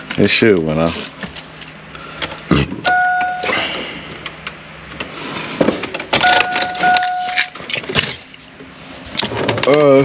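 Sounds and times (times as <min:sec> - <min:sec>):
dashboard warning chime: 0:02.9 - 0:03.6, 0:06.2 - 0:07.5.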